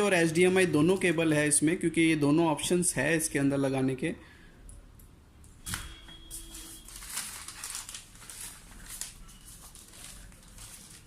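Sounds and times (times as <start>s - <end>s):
packaging crinkling and rustling: 6.4s - 11.0s.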